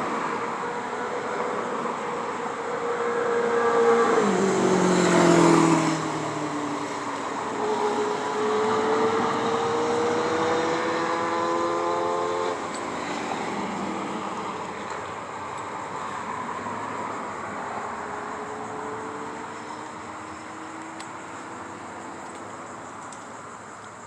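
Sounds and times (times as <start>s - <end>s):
vehicle passing by: 2.8s - 14.7s.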